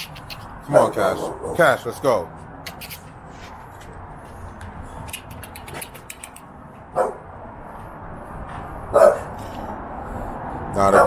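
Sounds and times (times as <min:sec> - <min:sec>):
dog barking: 0:00.7 - 0:01.7, 0:06.9 - 0:07.3, 0:08.9 - 0:09.4.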